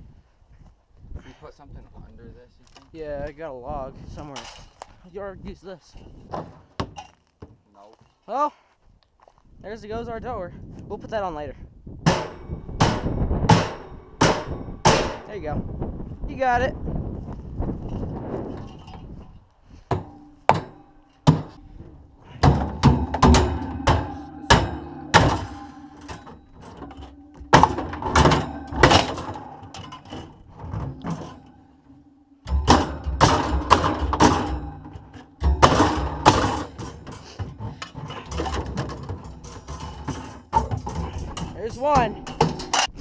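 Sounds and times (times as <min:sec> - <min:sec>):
tools thudding on refrigerator panels: 0:12.1 - 0:15.3, 0:19.9 - 0:43.0.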